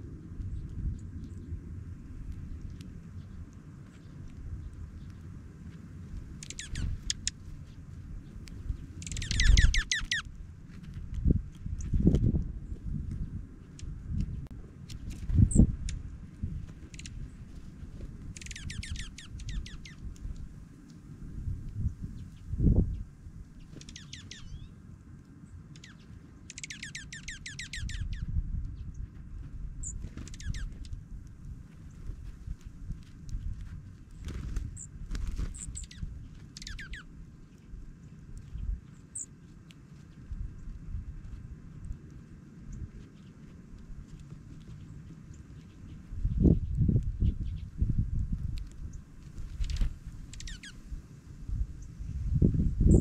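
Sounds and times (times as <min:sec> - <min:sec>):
small songbirds chirping: 0:00.0 - 0:53.0
steady low rumble: 0:00.0 - 0:53.0
birds calling in fast trills: 0:06.3 - 0:10.3, 0:18.3 - 0:20.1, 0:21.9 - 0:24.8, 0:25.6 - 0:29.0, 0:29.8 - 0:31.0, 0:34.1 - 0:39.4, 0:48.8 - 0:51.0.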